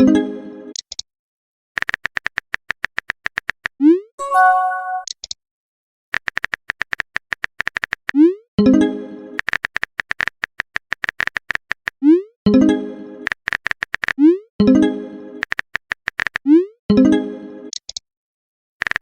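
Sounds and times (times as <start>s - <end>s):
keyboard typing clicks: 1.8s - 3.6s, 13.2s - 14.2s, 15.4s - 16.5s, 17.7s - 18.0s
short notification tone: 4.2s - 5.1s.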